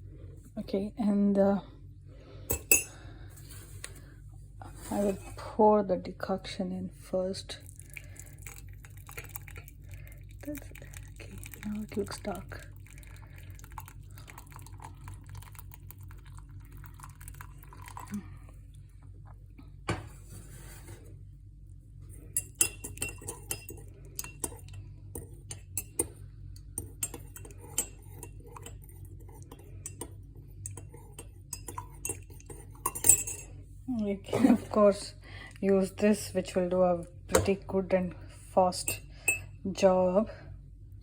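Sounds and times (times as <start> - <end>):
spoon clinking against a cup: 2.5 - 3.0, 22.4 - 26.1, 26.8 - 33.5, 38.9 - 39.5
spoon scraping a cup: 22.3 - 26.1, 26.8 - 33.5.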